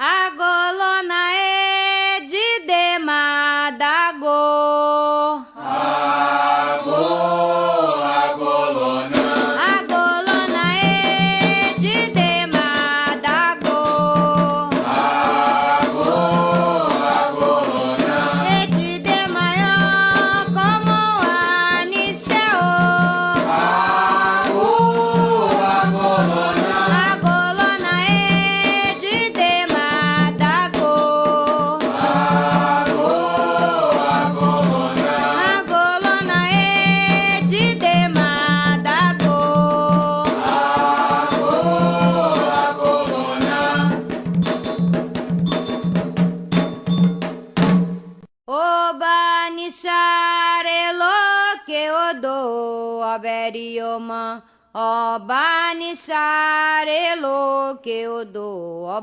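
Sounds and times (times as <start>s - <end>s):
person singing a chant: 5.2s - 44.0s
chorus of voices singing: 5.5s - 12.4s, 13.9s - 20.9s, 22.0s - 30.5s, 31.8s - 44.1s
hand percussion beat: 6.8s - 7.2s, 7.8s - 48.3s.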